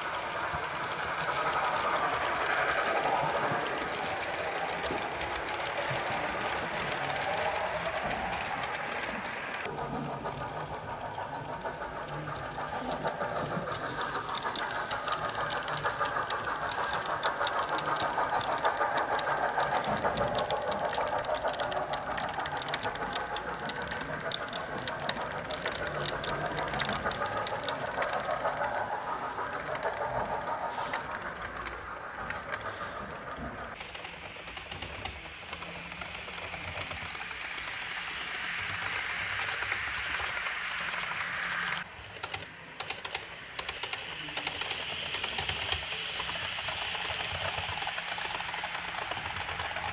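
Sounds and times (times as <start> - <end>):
model trains clicking and humming: 0.0 - 49.9
people talking: 1.4 - 9.0.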